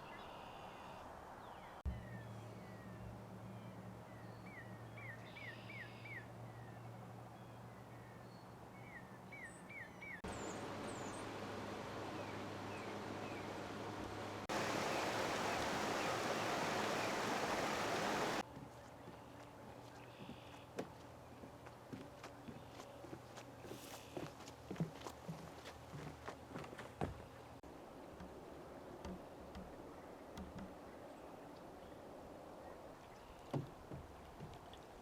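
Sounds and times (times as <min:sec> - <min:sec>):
small birds chirping: 0:08.0 - 0:11.4, 0:14.5 - 0:20.7
faint steady low hum: 0:10.3 - 0:18.4.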